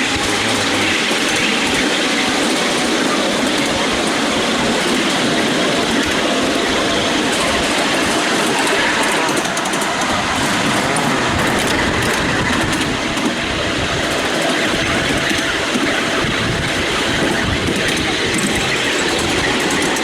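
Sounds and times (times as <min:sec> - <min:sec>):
wheels rumbling on rail: 0:00.0 - 0:20.0.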